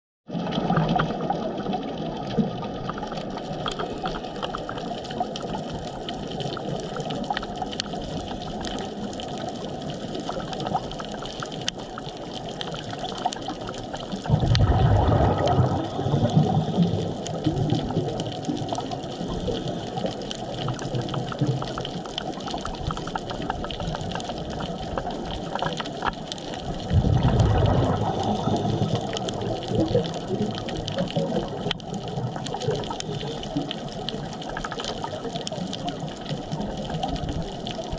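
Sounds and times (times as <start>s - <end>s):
sharp underwater clicks: 2.8s - 37.9s
underwater watery hiss: 14.6s - 17.9s, 27.2s - 30.4s.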